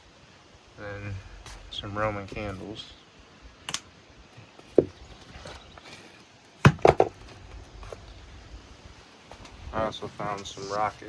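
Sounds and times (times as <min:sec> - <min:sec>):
knocks and thumps: 0:04.7 - 0:05.0, 0:06.7 - 0:08.0.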